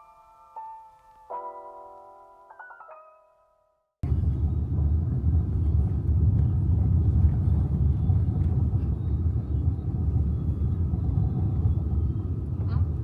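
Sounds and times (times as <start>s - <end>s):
steady low rumble: 4.0s - 13.0s.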